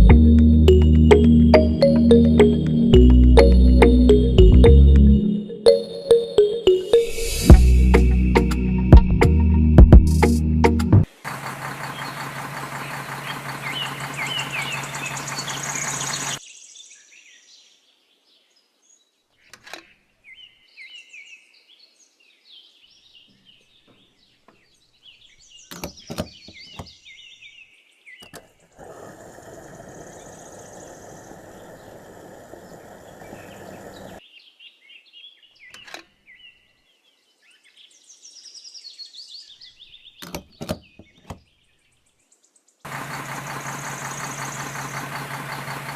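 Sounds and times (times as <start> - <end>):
small birds chirping: 11.3 - 45.9
steady hiss: 28.9 - 34.2.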